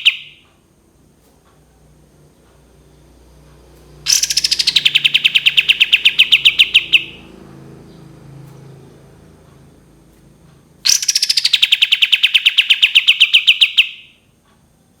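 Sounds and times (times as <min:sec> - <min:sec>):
songbird rapid trill: 0:00.0 - 0:00.4, 0:04.0 - 0:08.1, 0:10.8 - 0:14.2.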